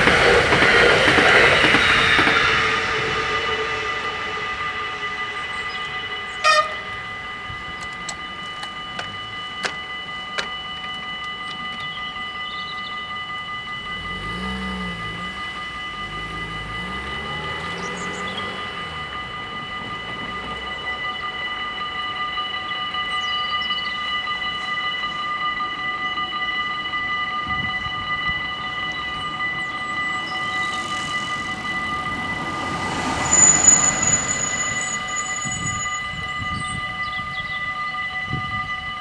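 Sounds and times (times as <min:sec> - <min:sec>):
crossing warning bells ringing: 0:00.0 - 0:39.0
electric train rumbling past: 0:00.0 - 0:39.0
car engine pulling away: 0:13.9 - 0:19.4.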